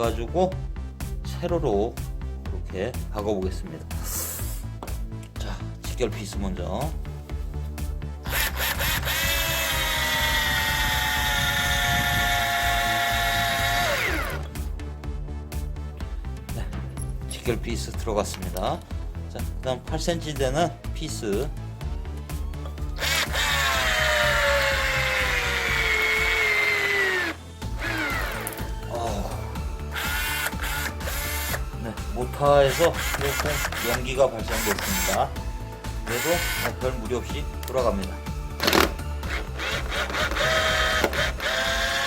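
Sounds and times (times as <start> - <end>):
cordless drill motor whine: 8.2 - 14.5, 23.0 - 28.7, 29.9 - 31.6, 32.7 - 35.2, 36.1 - 36.8, 38.6 - 42.0.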